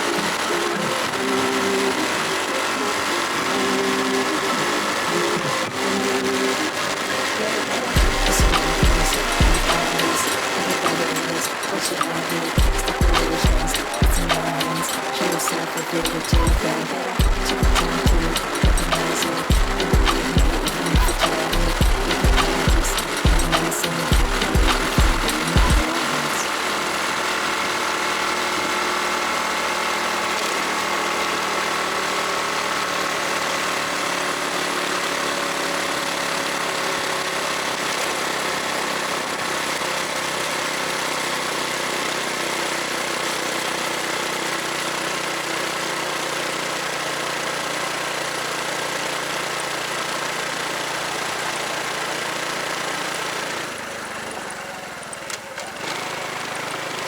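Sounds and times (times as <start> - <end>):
road noise: 0.0 - 45.6
motorcycle engine running: 0.0 - 57.0.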